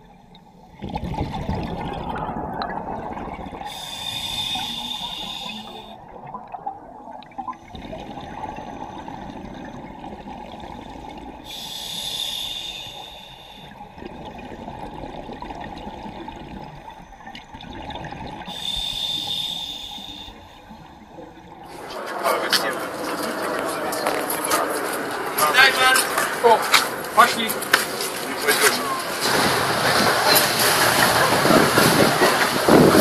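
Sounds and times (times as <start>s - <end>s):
bubbling exhaled air: 0.0s - 23.4s
scuba regulator hissing inhale: 3.6s - 6.0s, 11.4s - 13.9s, 18.5s - 20.9s.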